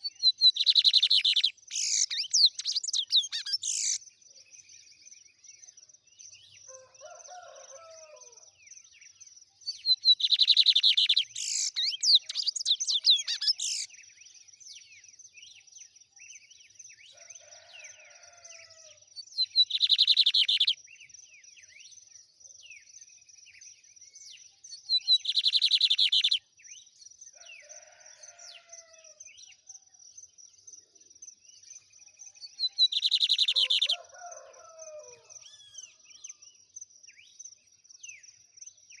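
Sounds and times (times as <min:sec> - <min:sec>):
faint bird chirps: 0:00.0 - 0:05.3, 0:09.0 - 0:14.1, 0:19.2 - 0:28.4, 0:29.4 - 0:36.4.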